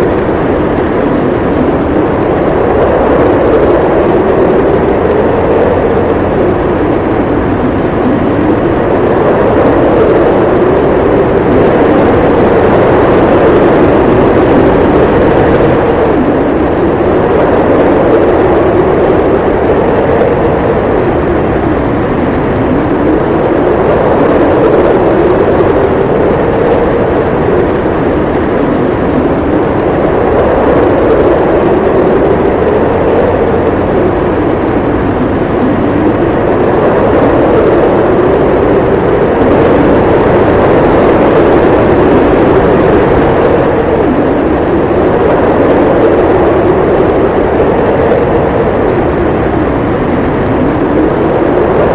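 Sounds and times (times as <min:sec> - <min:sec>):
howling wind: 0:00.0 - 0:51.9.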